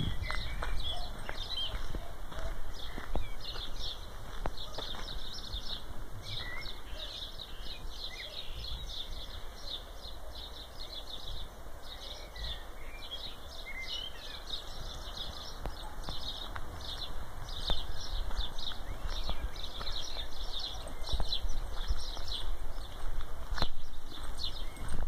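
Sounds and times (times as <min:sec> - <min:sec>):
low microphone rumble: 0:00.0 - 0:04.3
birds chirping: 0:00.0 - 0:25.0.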